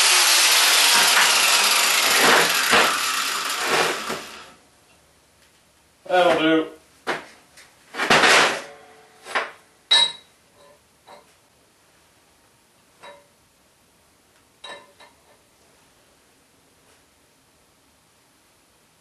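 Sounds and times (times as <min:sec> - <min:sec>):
steel pieces knocking and clinking: 0:09.3 - 0:11.3, 0:14.6 - 0:15.2.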